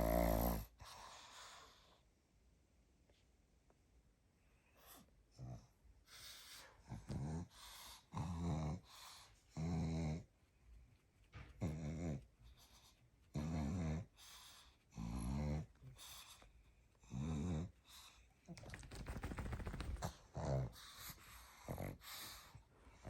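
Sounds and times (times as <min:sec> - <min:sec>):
dog snoring: 0:00.0 - 0:01.2, 0:06.8 - 0:10.3, 0:11.6 - 0:12.3, 0:13.3 - 0:16.0, 0:17.0 - 0:18.1, 0:20.0 - 0:23.0
dog breathing quietly: 0:20.0 - 0:23.0.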